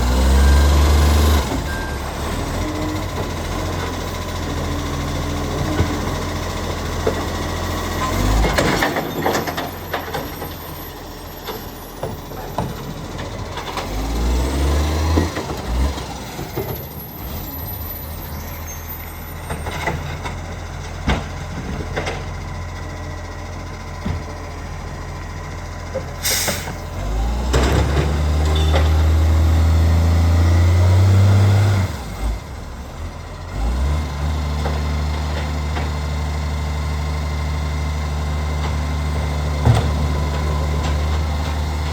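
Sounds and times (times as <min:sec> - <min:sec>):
diesel truck engine running: 0:00.0 - 0:41.9
air brake hiss: 0:26.2 - 0:26.8.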